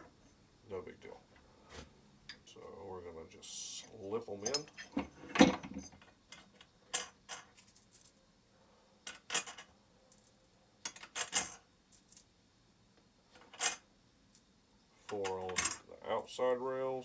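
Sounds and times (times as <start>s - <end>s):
metal fasteners clinking: 4.3s - 8.2s, 15.1s - 15.9s.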